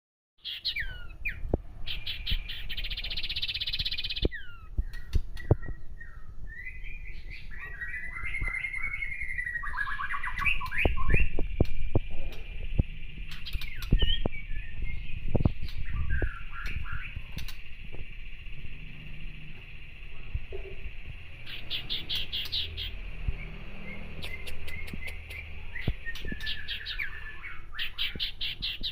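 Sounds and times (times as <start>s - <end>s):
bird chirps and trill: 0.4s - 28.9s
bird whistling: 0.4s - 28.9s
bird rattling chatter: 15.5s - 22.8s
sharp clicks: 16.6s - 18.2s, 24.1s - 26.7s.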